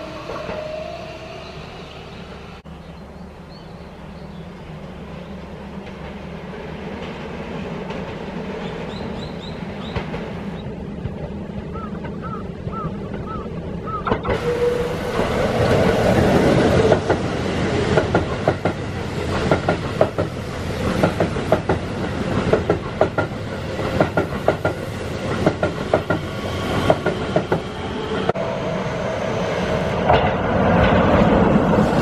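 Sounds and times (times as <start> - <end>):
electric train running past: 0.0 - 32.0
wheels clacking over rail joints: 5.7 - 28.4.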